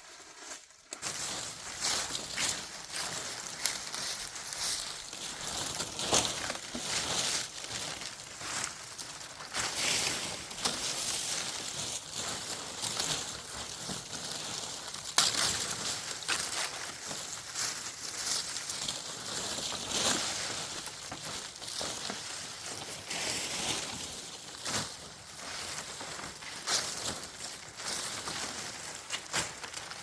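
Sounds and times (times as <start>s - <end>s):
rustling and crunching handling noise: 0.0s - 30.0s.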